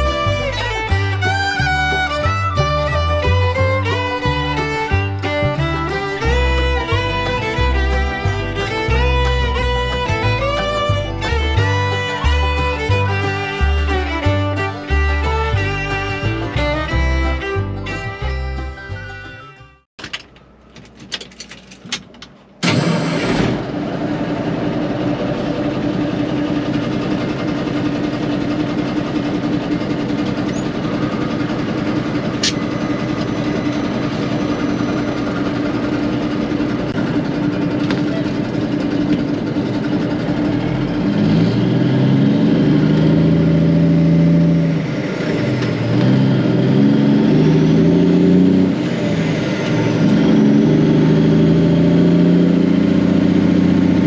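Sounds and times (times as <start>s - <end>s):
diesel engine running and revving: 0.0s - 19.8s, 22.7s - 54.0s
diesel truck engine cranking: 0.0s - 54.0s.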